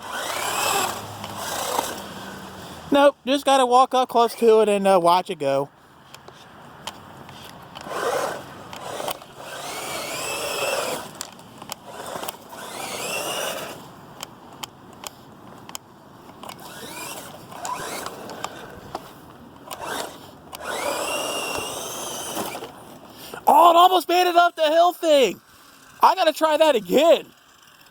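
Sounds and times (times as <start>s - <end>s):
electric motor whining: 0.0s - 2.8s, 7.8s - 13.9s, 16.4s - 19.1s, 19.7s - 22.8s
wheels spinning in wet snow: 0.0s - 3.5s, 7.8s - 14.0s, 16.5s - 23.1s, 25.4s - 27.9s.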